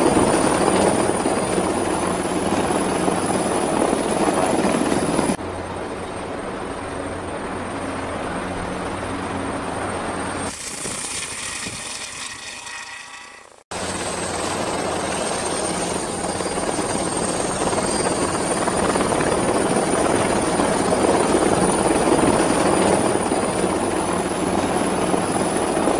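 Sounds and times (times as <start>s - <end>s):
helicopter rotor beating: 0.0s - 25.9s
high turbine whine: 0.0s - 25.9s.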